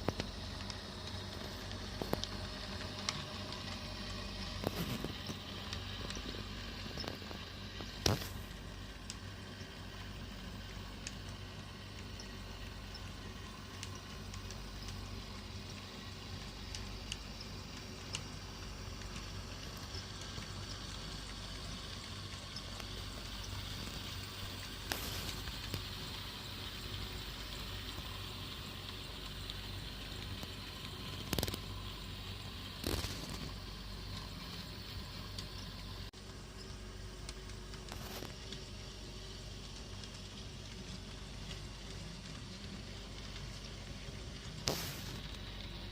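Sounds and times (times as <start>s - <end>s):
sharp clicks of model train: 0.0s - 36.4s.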